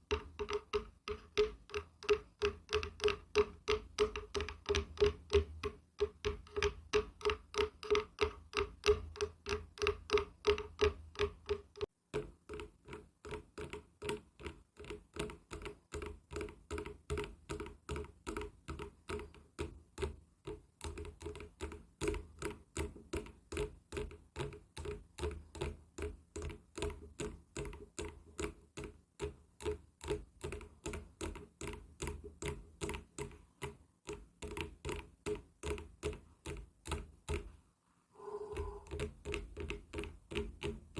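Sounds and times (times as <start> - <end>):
rapid tapping on wood: 0.0 - 37.5.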